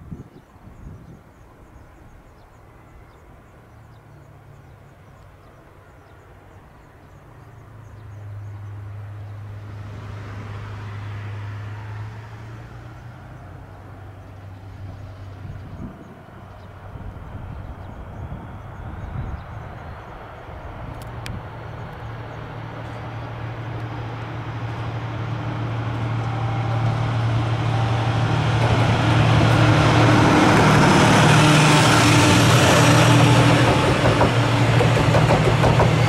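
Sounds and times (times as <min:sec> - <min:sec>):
train running noise: 0:12.8 - 0:36.0
train machine hum: 0:13.3 - 0:36.0.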